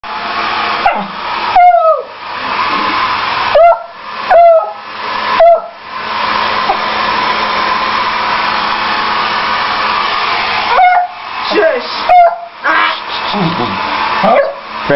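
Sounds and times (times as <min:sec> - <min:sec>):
hair dryer running: 0:00.0 - 0:14.9
dog barking and howling: 0:00.8 - 0:02.2, 0:03.5 - 0:05.8, 0:10.7 - 0:11.2, 0:12.0 - 0:13.0, 0:14.2 - 0:14.7.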